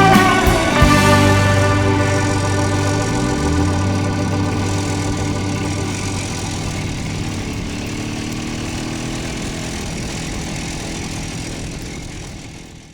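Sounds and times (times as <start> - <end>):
held musical chord: 0.0 - 8.4
two-stroke motorcycle engine running: 0.0 - 12.9.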